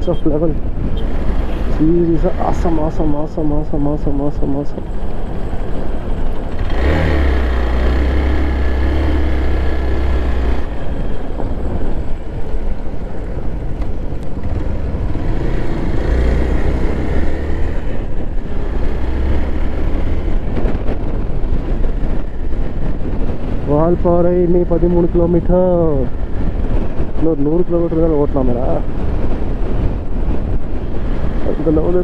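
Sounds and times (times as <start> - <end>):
motorcycle engine running: 4.8 - 23.7.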